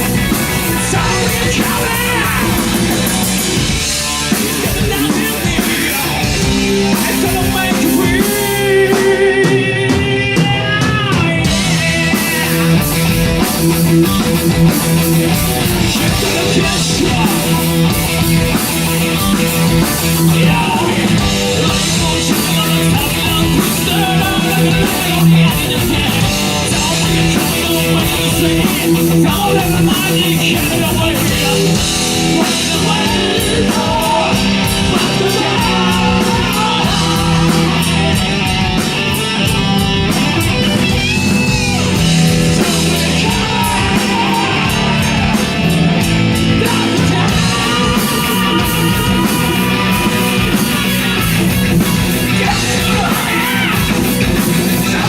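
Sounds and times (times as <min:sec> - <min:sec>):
person singing: 0:00.0 - 0:03.4, 0:04.3 - 0:13.0, 0:15.4 - 0:18.6, 0:19.5 - 0:39.3, 0:40.1 - 0:55.0
bass and drums: 0:00.0 - 0:55.0
electric guitar: 0:00.0 - 0:55.0.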